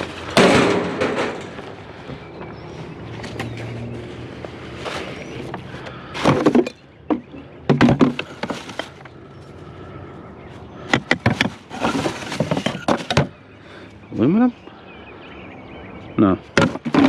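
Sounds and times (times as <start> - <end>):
scrap metal clanking: 0.0 - 1.8.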